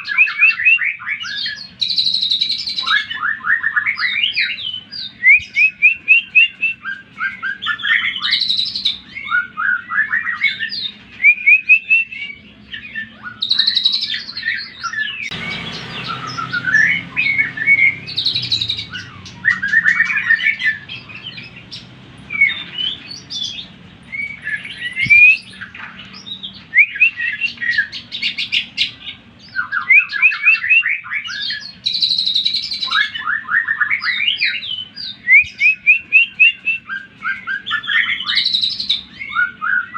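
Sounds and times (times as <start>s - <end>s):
bird singing chirps and whistles: 0.0s - 39.9s
low hum: 15.3s - 27.1s.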